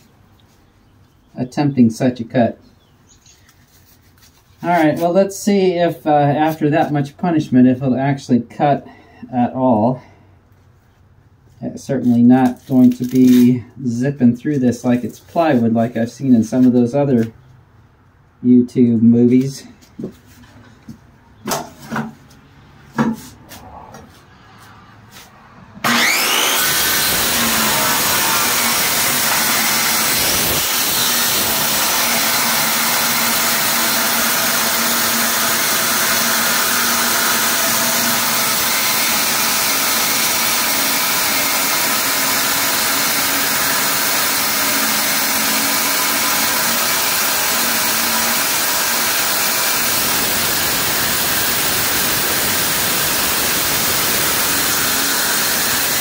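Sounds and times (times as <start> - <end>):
circular saw cutting metal: 25.8 - 56.0.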